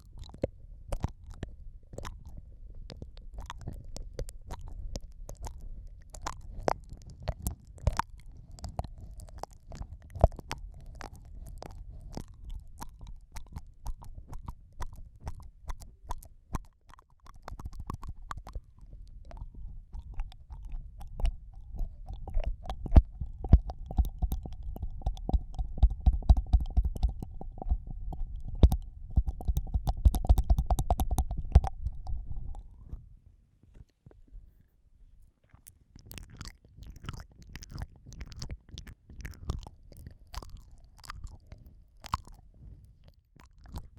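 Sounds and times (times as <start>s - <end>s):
tongue clicks: 0.0s - 33.0s, 35.4s - 43.9s
wet lip smacks: 0.0s - 33.0s, 35.4s - 43.9s
low muffled rumble: 18.9s - 35.3s.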